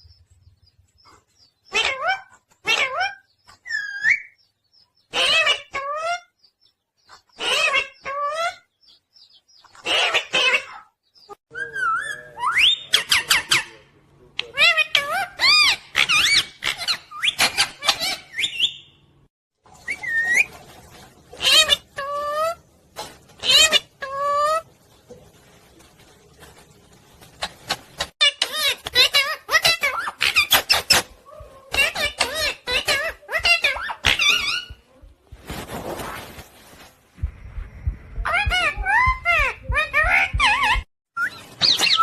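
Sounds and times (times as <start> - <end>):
parrot squawking: 1.7 - 4.4, 5.1 - 6.3, 7.4 - 8.6, 9.8 - 10.9, 11.5 - 18.9, 21.4 - 22.6, 23.4 - 24.6, 28.2 - 34.8, 38.2 - 40.9
parrot whistling and chattering: 11.5 - 13.8, 38.2 - 42.0.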